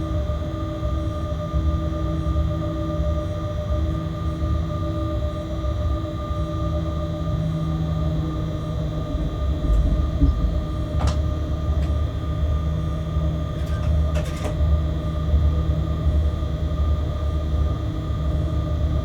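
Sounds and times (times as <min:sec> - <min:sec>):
electrical hum: 0:07.1 - 0:15.9
train rumble: 0:07.2 - 0:15.2.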